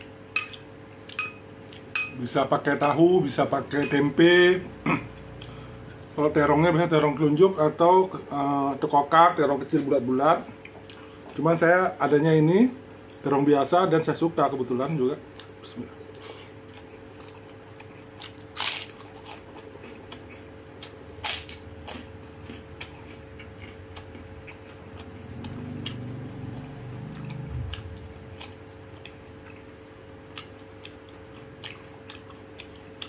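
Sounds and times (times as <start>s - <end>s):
steady low hum: 0.0s - 33.0s
man chewing and lip smacking: 10.5s - 11.4s, 15.3s - 18.4s, 19.0s - 21.0s, 21.8s - 33.0s.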